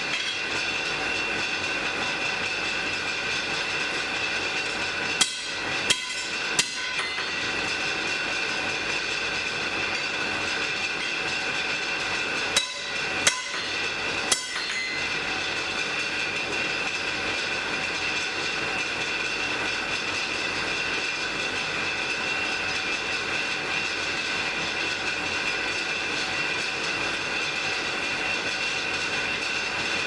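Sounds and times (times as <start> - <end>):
hammer ringing on anvil: 5.2 - 7.8, 12.6 - 15.8.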